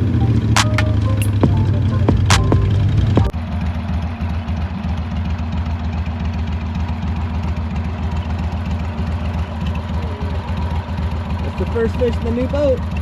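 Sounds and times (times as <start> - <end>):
boat motor humming: 0.0 - 3.3.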